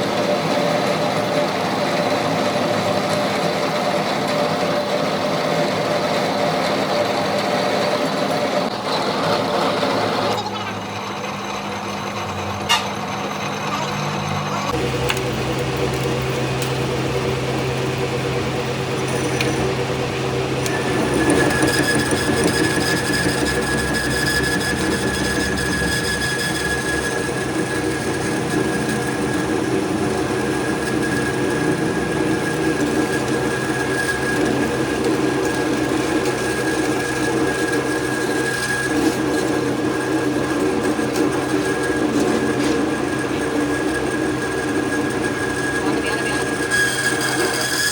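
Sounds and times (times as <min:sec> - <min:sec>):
machine humming: 0:00.0 - 0:47.9
high steady whine: 0:14.2 - 0:47.9.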